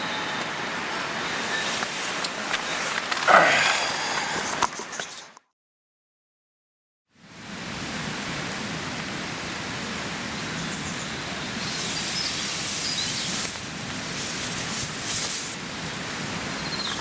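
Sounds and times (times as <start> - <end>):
rushing water: 7.3 - 17.0
bird chirps: 16.6 - 17.0.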